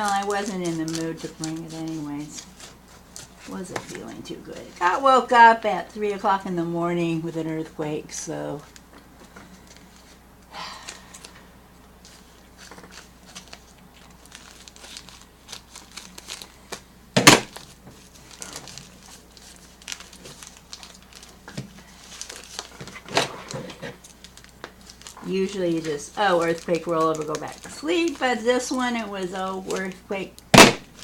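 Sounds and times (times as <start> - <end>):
packaging crinkling and tearing: 0.0 - 5.1, 12.0 - 31.0
sharp loud snap: 30.6 - 30.9.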